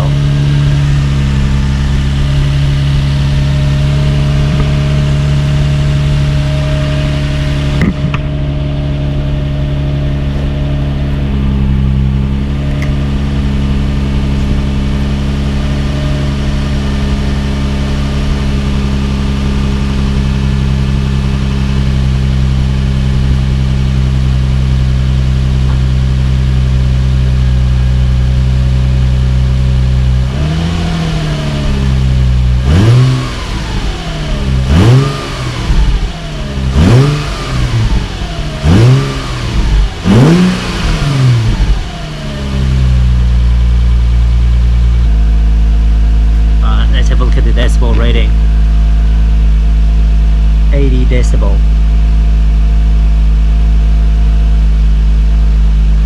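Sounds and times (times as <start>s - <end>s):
engine revving: 0.0s - 52.1s
car engine idling: 0.0s - 56.0s.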